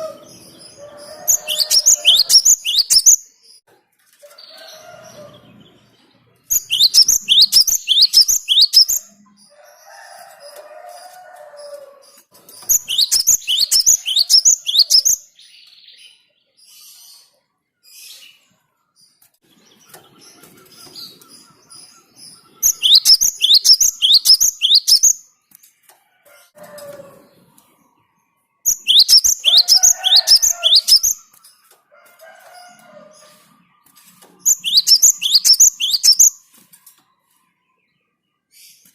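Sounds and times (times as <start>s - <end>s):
bird calling high sharp notes: 0.0s - 3.2s, 6.6s - 9.1s, 12.8s - 15.1s, 22.6s - 25.2s, 28.7s - 31.3s, 34.5s - 36.4s
faint lower bird chirps: 33.8s - 36.4s.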